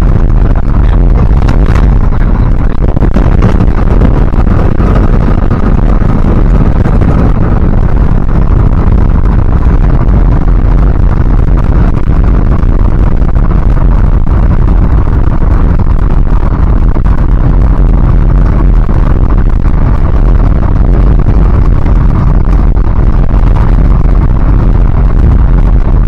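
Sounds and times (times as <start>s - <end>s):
vehicle driving: 0.0s - 15.6s
wind buffeting microphone: 0.0s - 26.0s.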